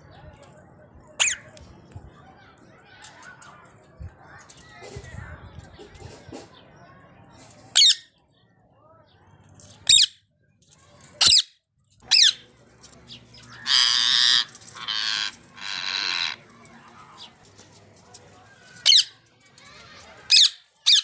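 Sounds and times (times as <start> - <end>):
parrot shrieking: 1.2 - 1.4, 12.1 - 12.4, 13.6 - 16.4.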